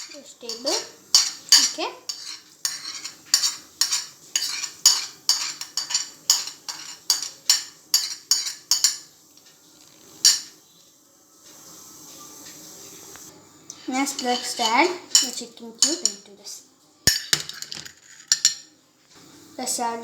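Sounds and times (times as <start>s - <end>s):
spoon stirring in a pot: 0.0s - 10.6s, 13.7s - 16.3s.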